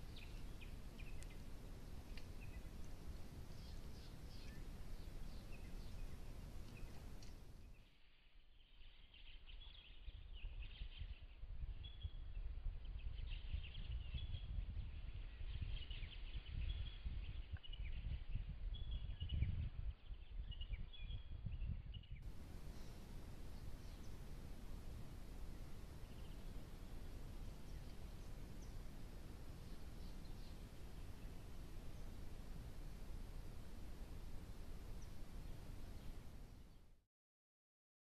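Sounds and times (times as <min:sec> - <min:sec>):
small birds chirping: 0:00.0 - 0:37.0
steady low rumble: 0:22.1 - 0:36.7.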